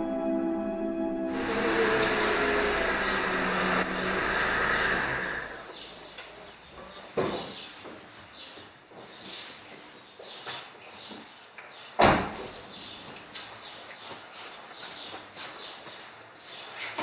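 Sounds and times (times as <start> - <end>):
car engine running: 1.4 - 5.5.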